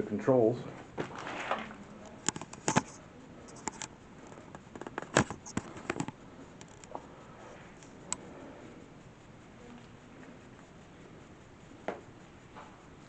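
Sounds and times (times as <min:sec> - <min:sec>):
sharp clicks and light knocks: 0:02.0 - 0:07.1.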